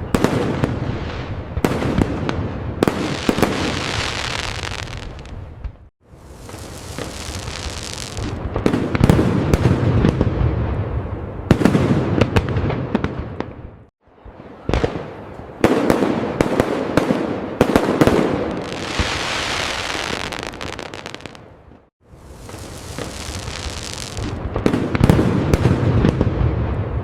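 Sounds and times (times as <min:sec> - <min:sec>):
fireworks booming and crackling: 0:00.0 - 0:27.0
hissing crackle: 0:06.2 - 0:08.4, 0:22.2 - 0:24.4.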